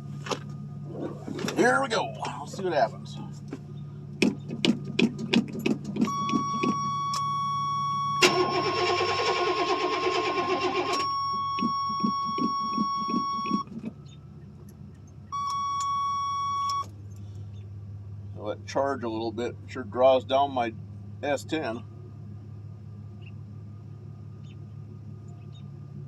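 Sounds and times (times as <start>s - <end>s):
engine cranking by starter: 0.2s - 14.8s.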